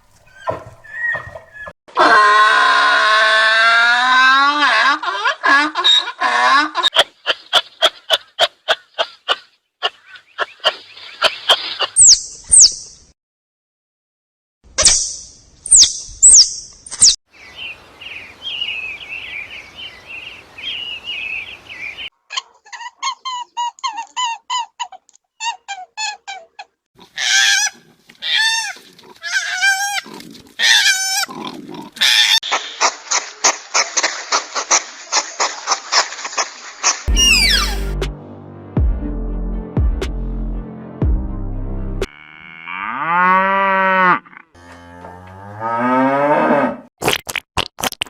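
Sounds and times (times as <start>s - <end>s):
animal chirping: 0.3s - 1.7s, 10.0s - 12.9s, 14.8s - 17.2s, 37.1s - 37.9s
high sharp animal squeals: 0.3s - 2.4s, 22.3s - 31.3s, 32.0s - 32.6s, 37.1s - 37.8s
loud falling animal calls: 37.1s - 37.9s
rapid pulsed animal calls: 37.1s - 37.9s
fast even trill: 37.1s - 38.2s.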